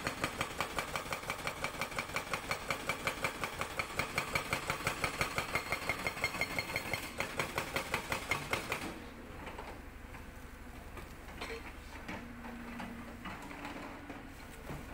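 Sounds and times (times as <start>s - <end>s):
hydraulic breaker hammering rock: 0.0s - 9.0s.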